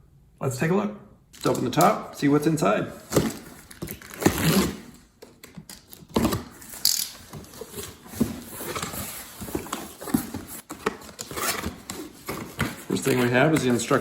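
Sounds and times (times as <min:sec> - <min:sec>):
cardboard knocks and scrapes: 0:06.2 - 0:14.0.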